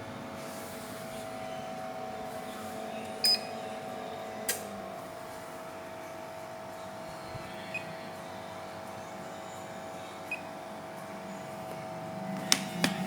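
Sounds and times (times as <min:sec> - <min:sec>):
electrical hum: 0:00.0 - 0:13.0
faint high beeps: 0:03.2 - 0:03.6.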